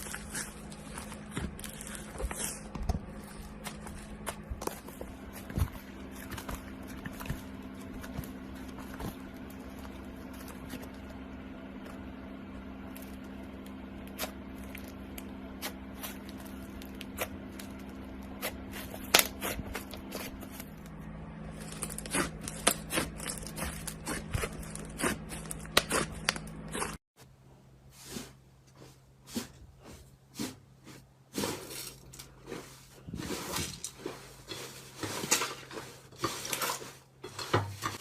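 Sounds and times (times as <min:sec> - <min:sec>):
low hum: 0:00.0 - 0:27.8.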